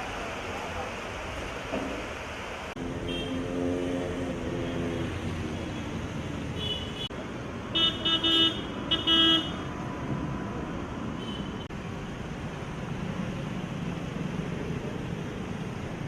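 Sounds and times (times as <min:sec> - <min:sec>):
traffic noise: 0:00.0 - 0:16.0
vehicle horns honking: 0:03.0 - 0:03.6, 0:06.6 - 0:07.1, 0:07.8 - 0:09.7.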